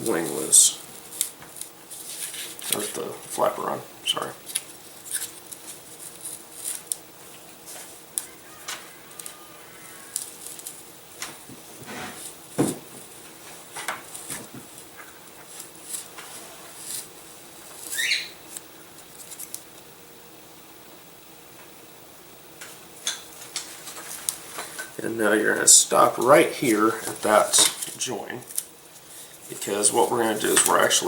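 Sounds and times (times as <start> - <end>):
small clicks and snaps: 10.1 - 11.4.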